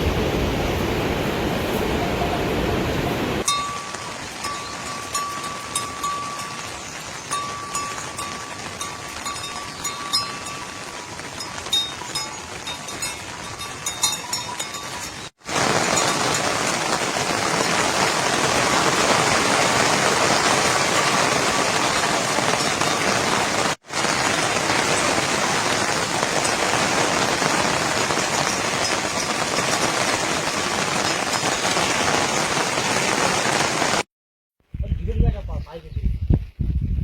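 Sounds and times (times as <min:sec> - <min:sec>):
heavy rain pattering: 0:00.0 - 0:34.1.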